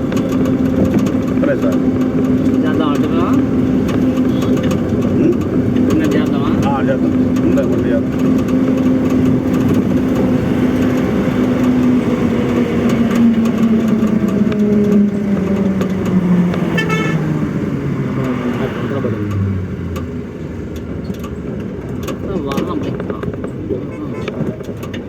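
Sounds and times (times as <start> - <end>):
truck engine running: 0.0 - 23.8
vehicle horn: 16.6 - 17.4, 23.8 - 24.4.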